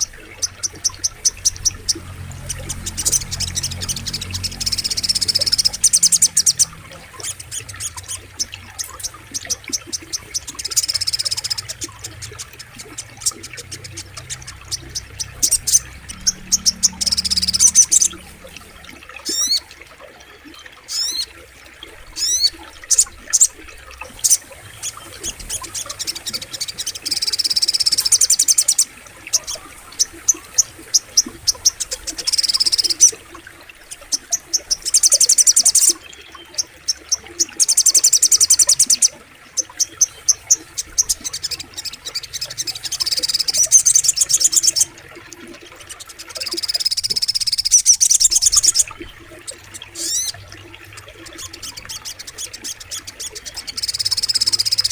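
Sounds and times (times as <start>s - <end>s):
bird trilling and chattering: 0.0s - 19.6s, 46.4s - 50.4s.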